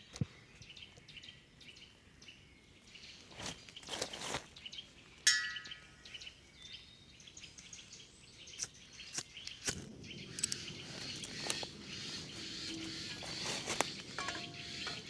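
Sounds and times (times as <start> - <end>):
birds chirping: 0.0 - 15.0
ringing clink: 5.3 - 5.8, 14.2 - 15.0.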